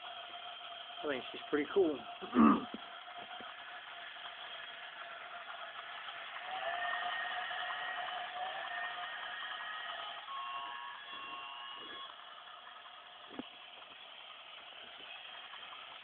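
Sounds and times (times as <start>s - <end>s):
toy train electronic tones: 4.2s - 16.0s.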